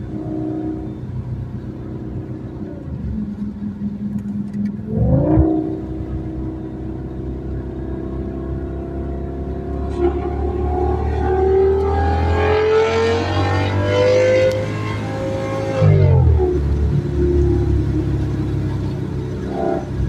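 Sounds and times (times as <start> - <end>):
car engine and exhaust revving: 0.0 - 20.0.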